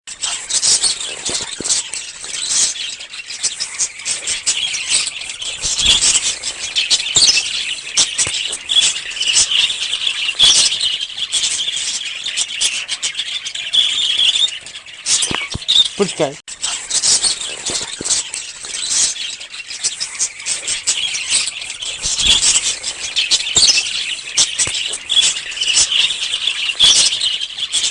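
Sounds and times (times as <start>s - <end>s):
small birds chirping: 0.1s - 27.9s.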